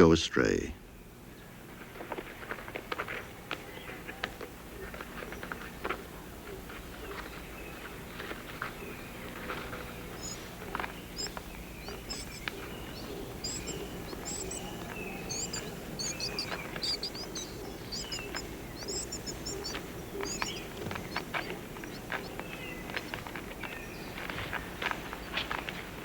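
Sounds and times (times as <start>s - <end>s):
high bird chirps: 7.0s - 25.6s.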